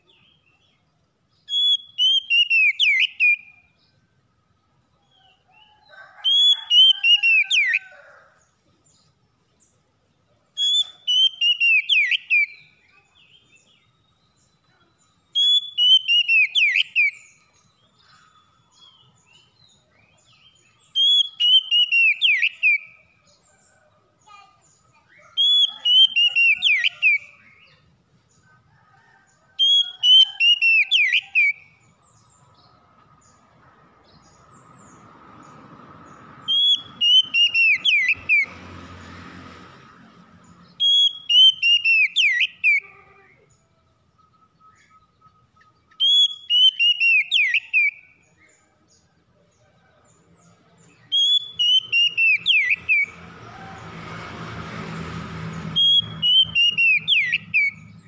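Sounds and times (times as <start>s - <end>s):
bird singing whistled phrase: 1.5s - 3.7s, 10.6s - 14.6s, 15.4s - 17.3s, 21.0s - 23.0s, 44.3s - 48.0s, 51.1s - 53.1s.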